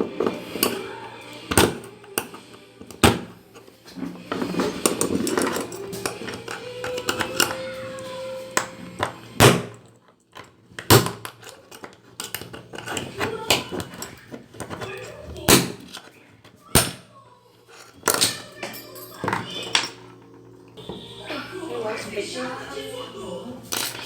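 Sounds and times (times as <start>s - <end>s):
parts clattering on workbench: 0.0s - 7.7s, 8.5s - 16.2s, 17.7s - 20.4s, 23.7s - 24.0s.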